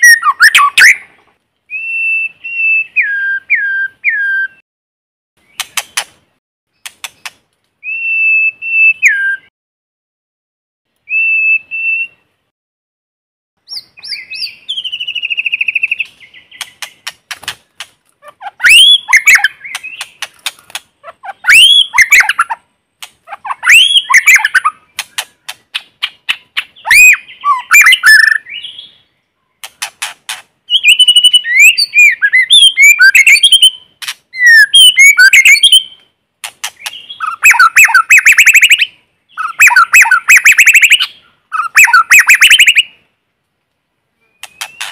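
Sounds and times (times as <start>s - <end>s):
bird whistling song: 0.0s - 1.1s, 1.7s - 4.6s, 7.1s - 9.5s, 11.0s - 12.3s, 13.6s - 17.1s, 18.5s - 20.3s, 21.2s - 22.5s, 23.3s - 29.2s, 30.7s - 36.1s, 36.7s - 43.0s, 44.2s - 44.9s.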